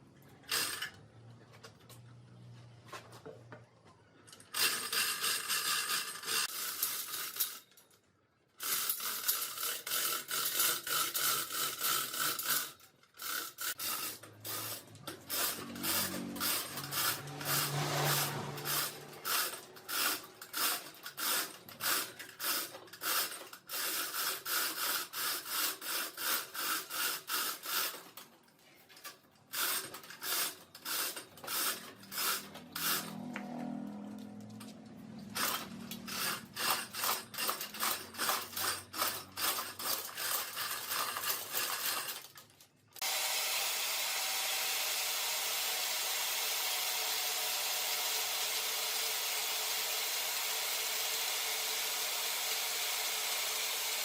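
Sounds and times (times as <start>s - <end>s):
tool scraping on wood: 13.6s - 23.4s, 29.8s - 42.2s.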